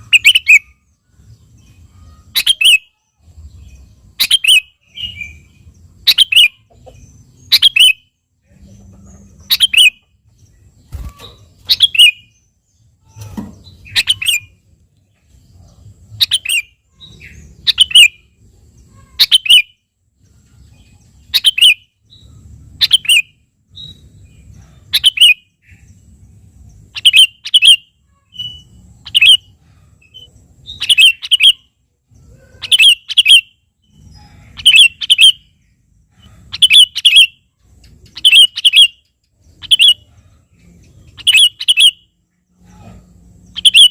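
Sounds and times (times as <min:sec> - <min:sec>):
bulbul calling: 0:00.0 - 0:00.8, 0:02.0 - 0:03.0, 0:04.2 - 0:10.2, 0:10.9 - 0:12.4, 0:13.0 - 0:14.6, 0:15.7 - 0:18.3, 0:21.2 - 0:25.9, 0:26.8 - 0:31.7, 0:32.5 - 0:43.9.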